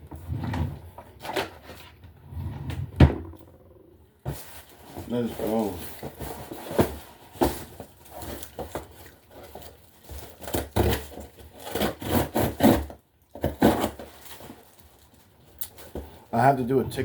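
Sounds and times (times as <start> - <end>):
packaging crinkling and scraping: 0.0 - 2.2, 4.2 - 16.4
packaging ripping: 4.4 - 15.9.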